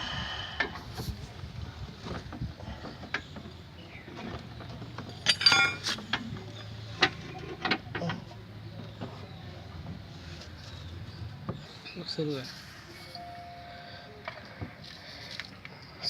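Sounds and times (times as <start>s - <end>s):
metal parts clinking and knocking: 4.9s - 7.8s.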